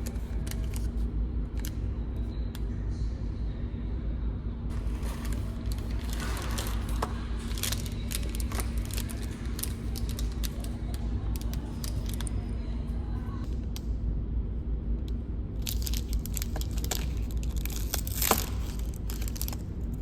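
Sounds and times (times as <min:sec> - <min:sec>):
small clicks and crackles: 0:00.0 - 0:02.7, 0:04.7 - 0:14.0, 0:15.0 - 0:20.0
ferry engines droning: 0:04.7 - 0:13.7.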